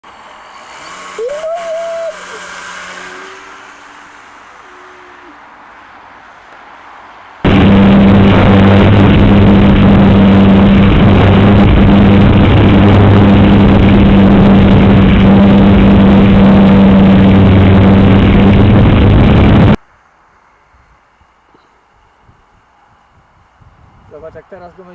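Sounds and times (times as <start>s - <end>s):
model plane motor humming: 0.0s - 6.4s, 7.4s - 19.8s
air rushing: 1.2s - 19.8s.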